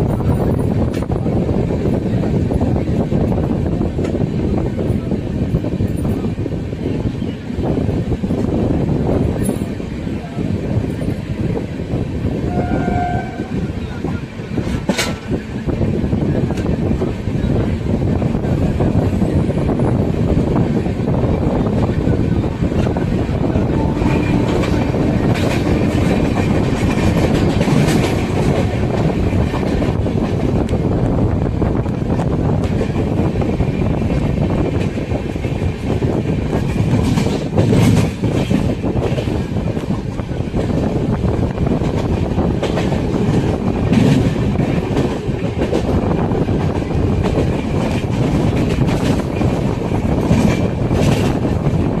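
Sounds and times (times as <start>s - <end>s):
train rumbling: 0.0s - 52.0s
wheels clacking over rail joints: 19.8s - 30.8s.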